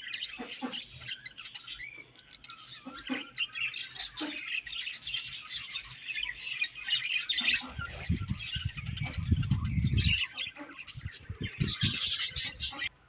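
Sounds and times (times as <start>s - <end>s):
budgerigars chirping and warbling: 0.0s - 13.0s
low rumble of quick thumps: 7.8s - 10.2s.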